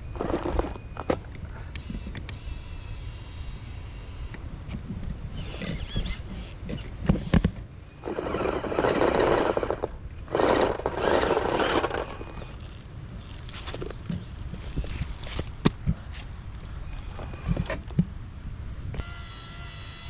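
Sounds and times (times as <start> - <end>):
crunching scrabbling on rough ground: 0.0 - 1.3, 6.7 - 18.2
electric motor whine: 1.8 - 4.4, 5.4 - 15.6, 19.0 - 20.0.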